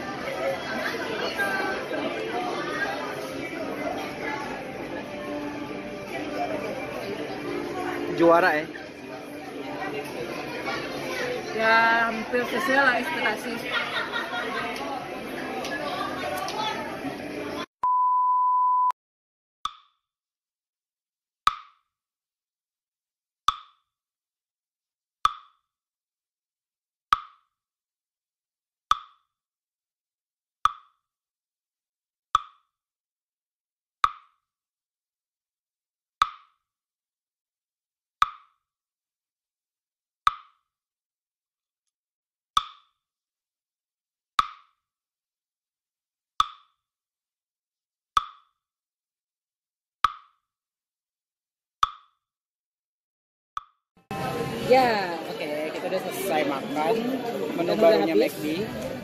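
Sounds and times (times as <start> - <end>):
censor bleep tone: 17.8 - 19.0.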